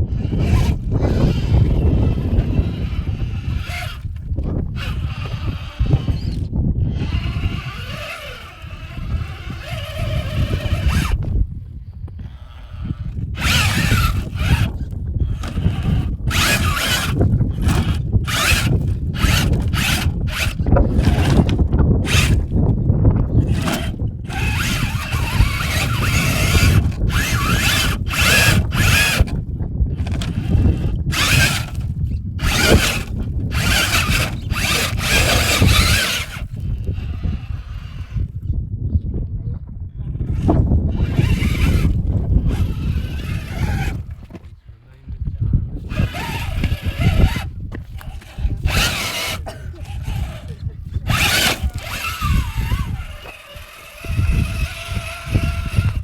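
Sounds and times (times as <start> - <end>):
toy truck electric motor whining: 0.0 - 11.4, 12.1 - 38.5, 40.2 - 44.4, 45.8 - 56.0
steady low rumble: 0.0 - 38.9.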